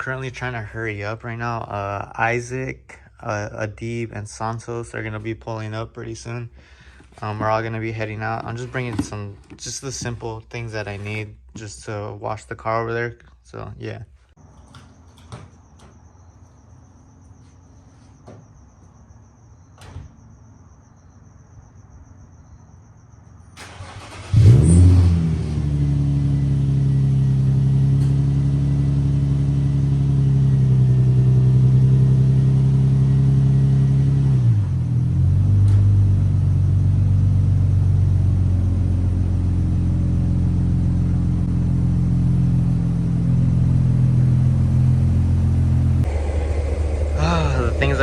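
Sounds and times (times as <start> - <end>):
car engine cranking and starting: 6.8 - 11.2, 23.6 - 48.0
car engine idling: 23.6 - 48.0.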